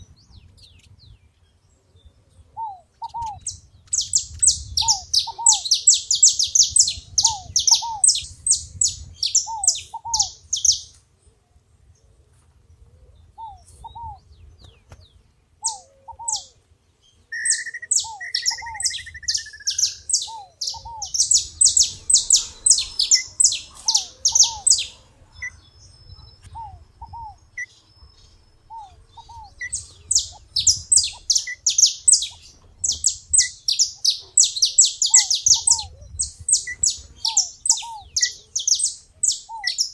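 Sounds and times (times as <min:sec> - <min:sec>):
bird low paired call notes: 0:00.0 - 0:11.0, 0:13.0 - 0:39.9
finch singing rapid high chirps: 0:17.4 - 0:39.9.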